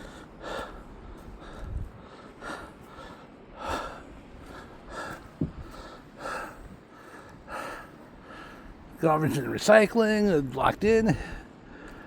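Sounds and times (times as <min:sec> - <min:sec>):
man breathing heavily: 0:00.0 - 0:08.8, 0:11.2 - 0:12.0.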